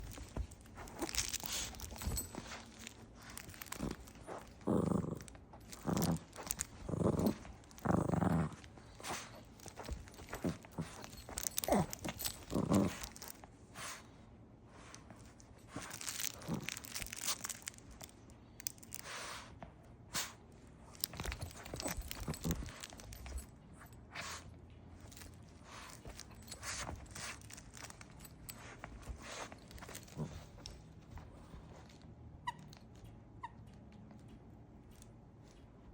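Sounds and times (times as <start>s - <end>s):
puppy growling: 0.0s - 13.4s, 15.8s - 17.5s, 21.0s - 23.4s, 25.7s - 31.9s
crunch toy crackling: 15.8s - 18.0s.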